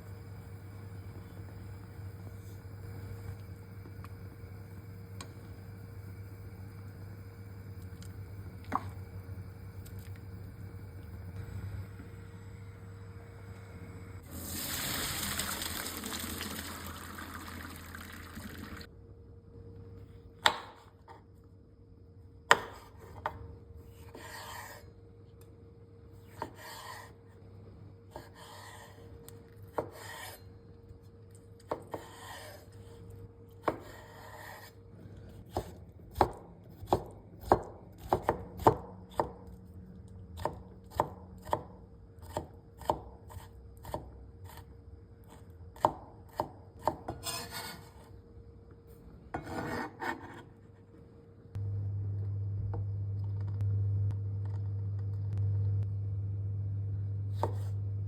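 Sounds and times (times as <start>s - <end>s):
knife chopping on cutting board: 20.4s - 21.2s, 22.5s - 23.4s, 26.3s - 27.1s, 29.7s - 30.4s, 31.7s - 32.6s, 33.6s - 34.7s, 35.5s - 39.4s, 40.4s - 44.6s, 45.8s - 47.9s, 57.3s - 57.8s.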